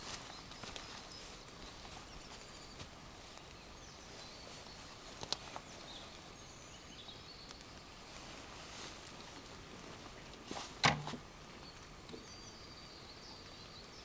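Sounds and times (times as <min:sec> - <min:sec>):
faint outdoor ambience: 0:00.0 - 0:14.0.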